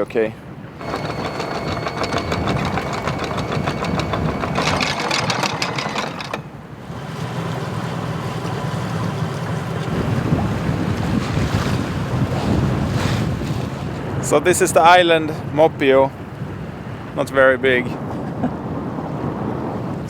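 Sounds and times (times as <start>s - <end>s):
boat engine running: 0.8s - 13.0s
rush of wind and water: 6.7s - 20.0s
wind on microphone: 9.8s - 14.2s, 16.1s - 20.0s.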